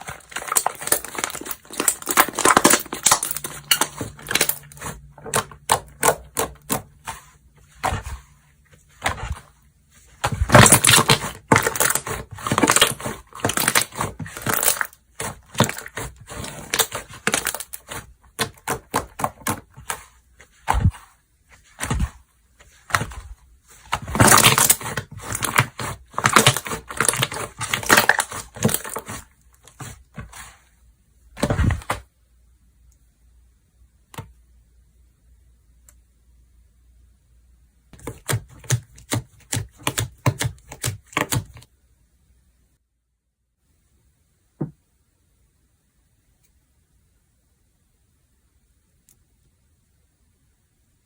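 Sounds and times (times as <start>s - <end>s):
hands squeezing slime: 0.0s - 8.2s, 10.1s - 30.6s.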